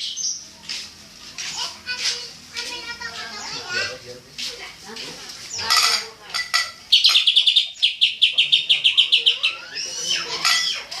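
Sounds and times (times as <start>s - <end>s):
bird call notes: 6.9s - 10.9s.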